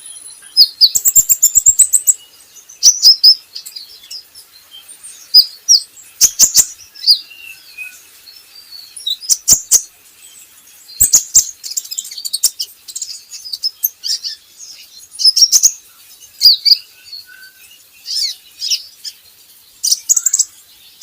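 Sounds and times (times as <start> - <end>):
bird chirping and twittering: 0.0 - 21.0
sharp tick-like bird notes: 10.9 - 15.8, 19.8 - 20.6.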